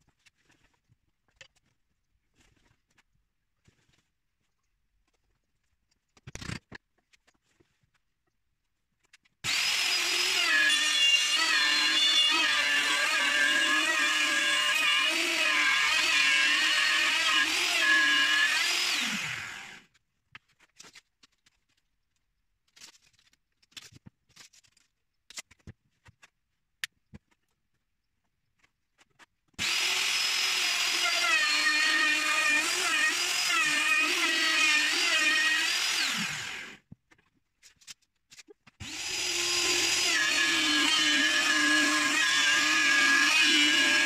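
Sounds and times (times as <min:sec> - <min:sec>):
power tool whining into wood: 0:09.4 - 0:19.9, 0:29.6 - 0:36.9, 0:38.8 - 0:44.0.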